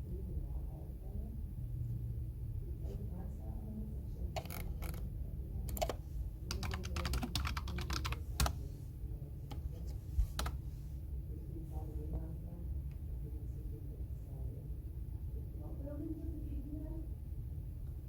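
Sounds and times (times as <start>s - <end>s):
low background hum: 0.0s - 18.0s
computer keyboard typing: 4.4s - 5.1s, 5.7s - 8.6s, 10.3s - 10.6s.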